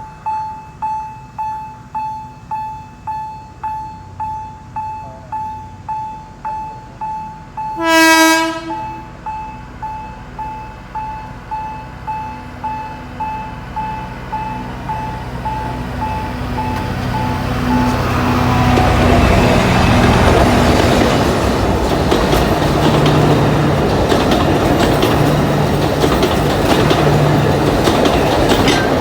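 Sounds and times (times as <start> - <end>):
railroad crossing bell dinging: 0.0 - 29.0
train engine rumble: 0.0 - 29.0
train horn: 7.8 - 9.2.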